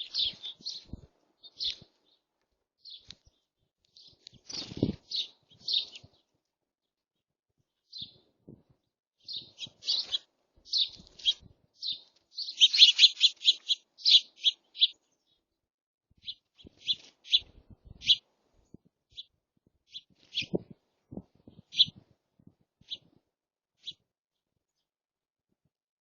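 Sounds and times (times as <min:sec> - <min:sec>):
small birds chirping: 0:00.0 - 0:23.2, 0:23.8 - 0:25.0.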